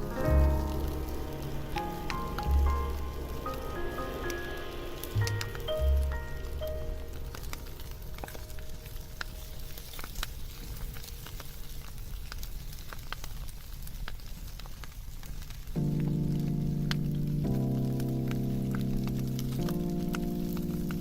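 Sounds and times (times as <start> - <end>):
held musical tone: 0.0 - 9.8
wood fire crackling and popping: 0.0 - 21.0.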